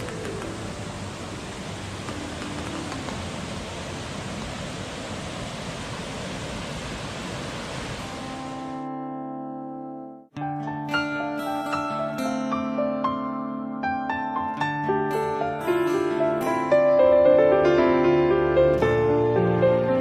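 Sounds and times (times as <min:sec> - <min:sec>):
steady rushing noise: 0:00.0 - 0:08.9.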